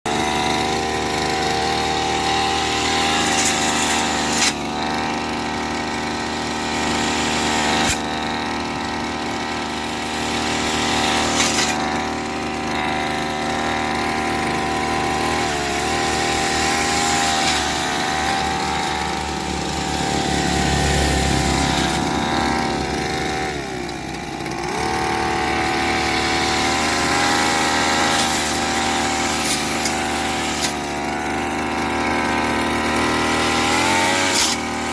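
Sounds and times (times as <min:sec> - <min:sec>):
petrol grass cutter engine: 0:00.1 - 0:34.9.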